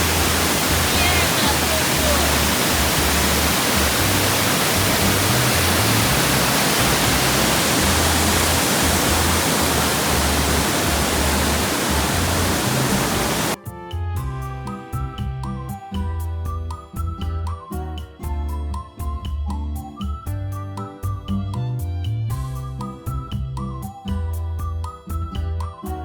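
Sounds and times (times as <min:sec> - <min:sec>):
waterfall rushing: 0:00.0 - 0:13.6
background music: 0:00.0 - 0:26.0.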